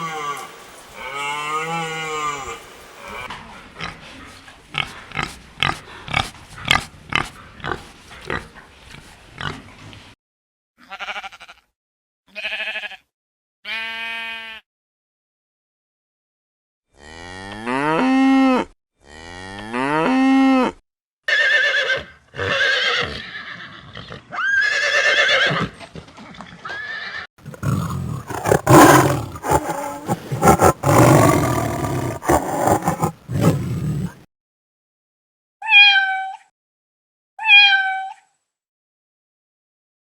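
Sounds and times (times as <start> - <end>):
animal calls: 27.4 - 34.2.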